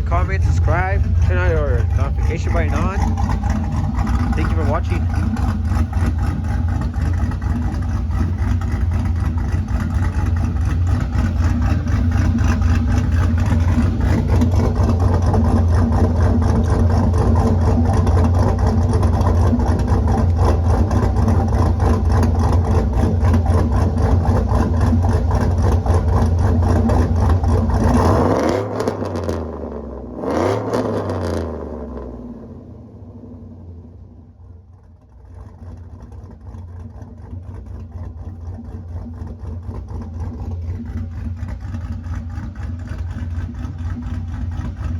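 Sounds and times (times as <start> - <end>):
pickup truck engine idling: 0.0 - 28.0, 33.5 - 44.9
engine revving: 0.0 - 32.6.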